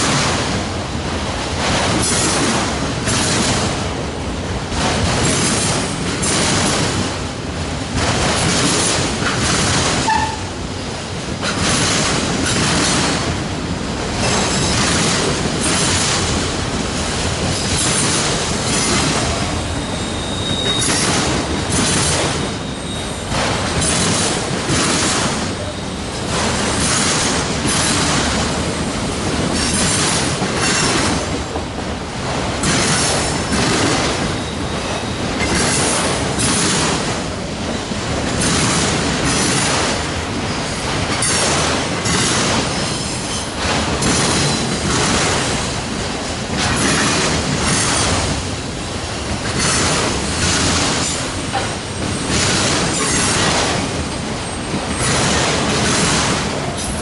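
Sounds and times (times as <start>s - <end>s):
train wheels rumbling on rails: 0.0s - 57.0s
high wheel squeal: 19.4s - 21.1s, 22.4s - 23.4s.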